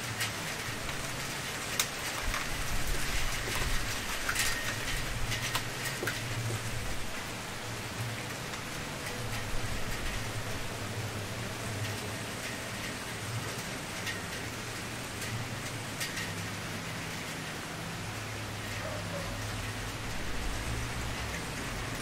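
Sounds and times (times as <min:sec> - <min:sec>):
wood fire crackling and popping: 0:00.1 - 0:07.4.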